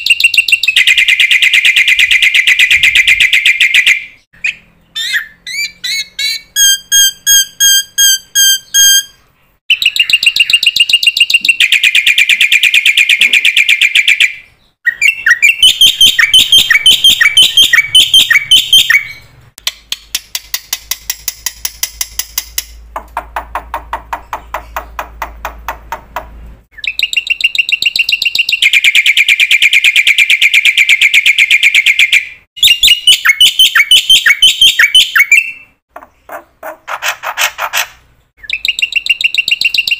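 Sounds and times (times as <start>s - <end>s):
bird whistling repeated notes: 0.0s - 19.3s, 26.7s - 35.8s, 38.4s - 39.9s.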